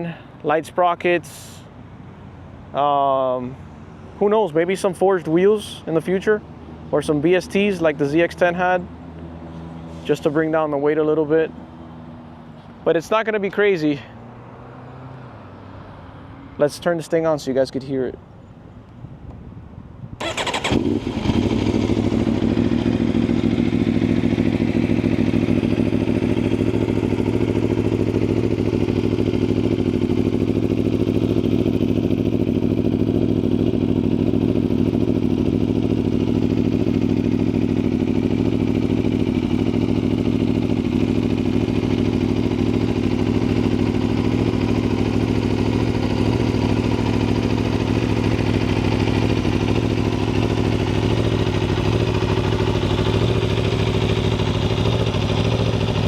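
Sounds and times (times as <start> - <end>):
motorcycle engine idling: 20.2 - 56.0
motorcycle engine starting: 20.2 - 56.0.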